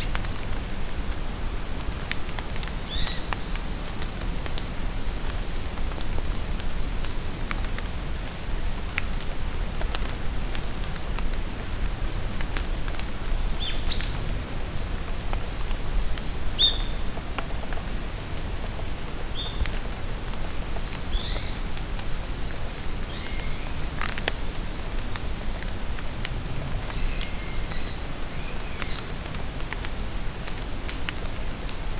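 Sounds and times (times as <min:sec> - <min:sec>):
rain pattering: 0:00.0 - 0:31.9
songbirds chirping: 0:13.2 - 0:18.5.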